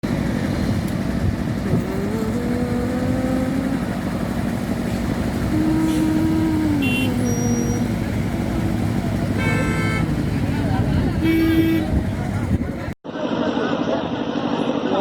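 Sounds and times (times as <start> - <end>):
engine note rising: 0.0 - 12.8
traffic engines rumbling: 0.0 - 15.0.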